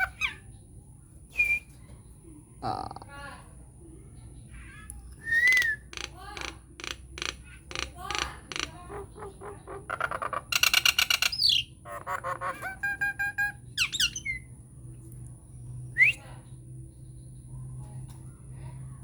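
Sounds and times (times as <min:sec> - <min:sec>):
myna calling and chattering: 0:00.0 - 0:00.5, 0:04.4 - 0:14.5.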